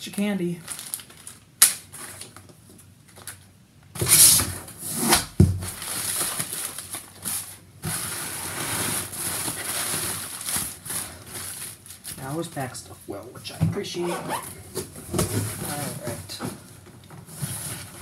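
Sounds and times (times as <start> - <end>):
cardboard box rustling and scraping: 14.2 - 18.0.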